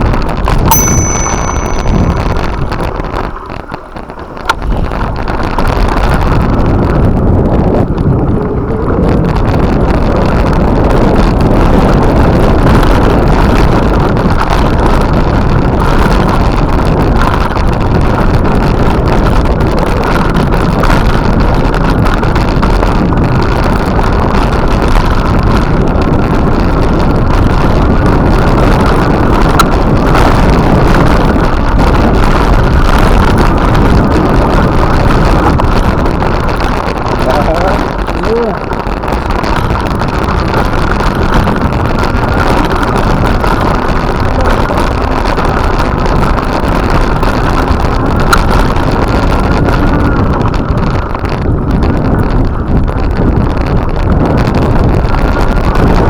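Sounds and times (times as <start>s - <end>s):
wind buffeting microphone: 0.0s - 56.0s
low rumble: 0.6s - 2.9s.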